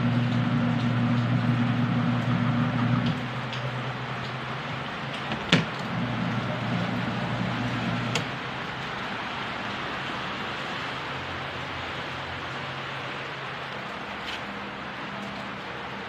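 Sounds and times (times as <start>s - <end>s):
low motor hum: 0.0s - 4.6s, 5.2s - 8.6s
washing machine churning: 0.0s - 9.5s.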